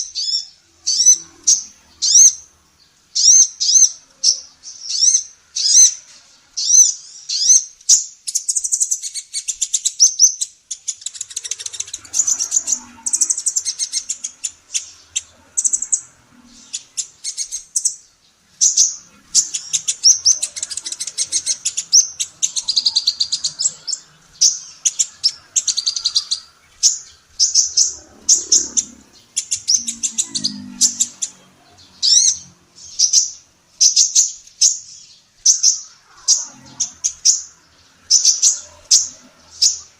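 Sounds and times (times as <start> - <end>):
sunbird singing: 0.0 - 39.9.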